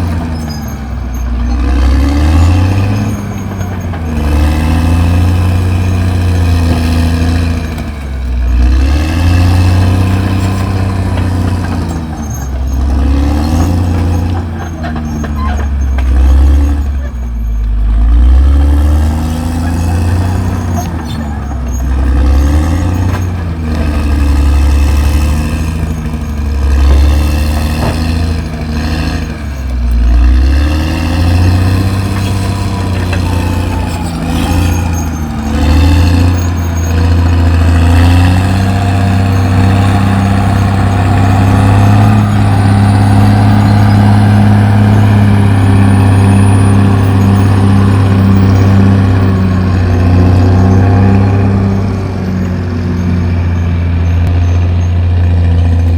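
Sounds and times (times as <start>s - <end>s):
bulldozer diesel engine: 0.0s - 55.9s.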